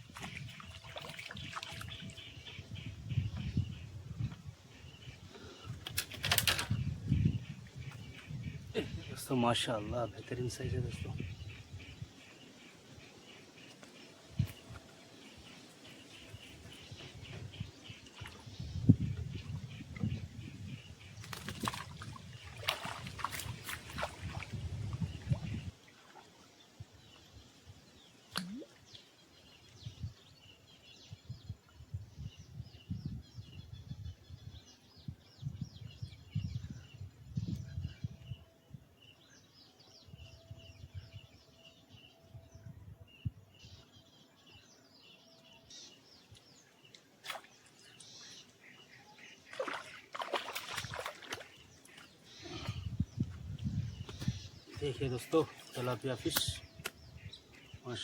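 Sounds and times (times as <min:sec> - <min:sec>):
low wind gusts: 0:00.0 - 0:26.0, 0:29.4 - 0:39.3, 0:48.9 - 0:58.0
faint bird chirps: 0:28.3 - 0:58.0
low rumble on microphone: 0:52.5 - 0:54.6.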